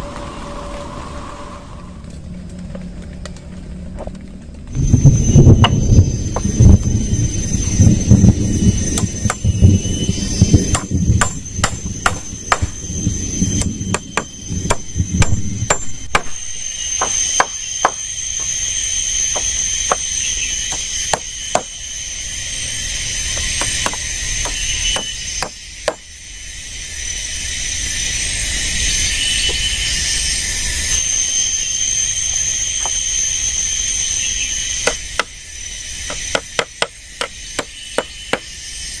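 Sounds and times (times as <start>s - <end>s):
low rumbling noise: 0.0s - 25.8s
high-pitched insect drone: 4.6s - 39.0s
tool striking wood: 9.0s - 9.5s, 10.7s - 12.8s, 13.6s - 18.6s, 19.3s - 20.1s, 20.7s - 21.7s, 23.6s - 26.0s, 34.8s - 35.3s, 36.0s - 38.5s.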